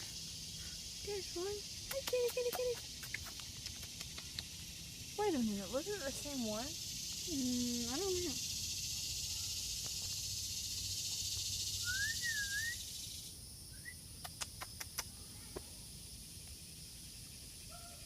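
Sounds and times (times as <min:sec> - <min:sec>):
whistled bird call: 0:11.7 - 0:13.0.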